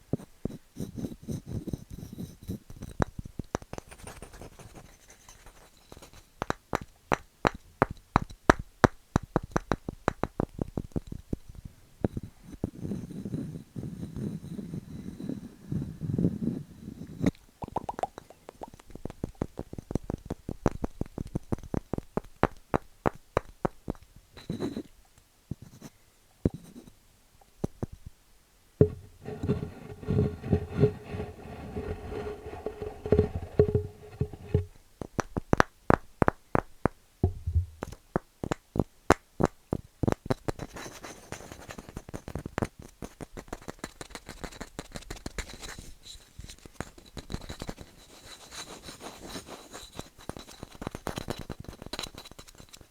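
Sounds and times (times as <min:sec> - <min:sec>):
steady humming tone: 0:28.8 - 0:34.7
tapping and scratching on wood: 0:28.8 - 0:34.7.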